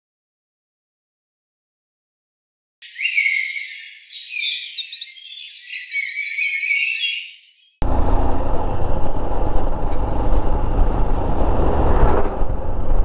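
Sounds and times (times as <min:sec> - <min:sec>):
wind rush on microphone: 0:08.4 - 0:13.0.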